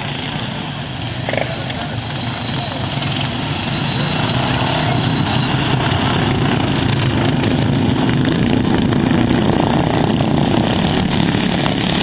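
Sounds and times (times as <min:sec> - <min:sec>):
lawn mower engines running: 0:00.0 - 0:12.0.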